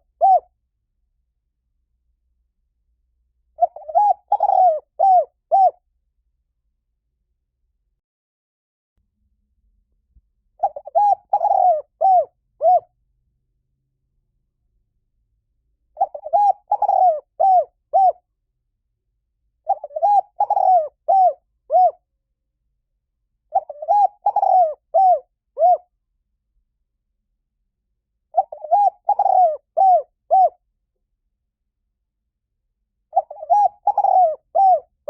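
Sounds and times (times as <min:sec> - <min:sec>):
dove cooing: 0:00.0 - 0:00.5, 0:03.6 - 0:05.8, 0:10.6 - 0:12.9, 0:16.0 - 0:18.2, 0:19.6 - 0:22.0, 0:23.5 - 0:25.9, 0:28.3 - 0:30.6, 0:33.1 - 0:35.0.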